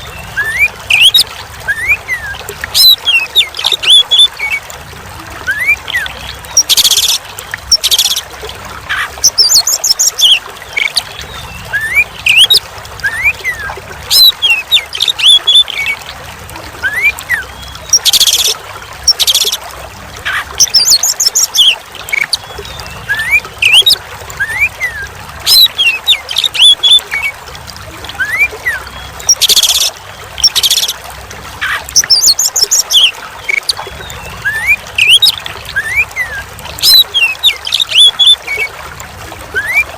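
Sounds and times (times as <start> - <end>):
songbird singing: 0.0 - 4.6, 8.9 - 16.1, 16.8 - 19.6, 20.2 - 27.4, 28.1 - 31.0, 31.6 - 38.7
water trickling: 0.0 - 39.9.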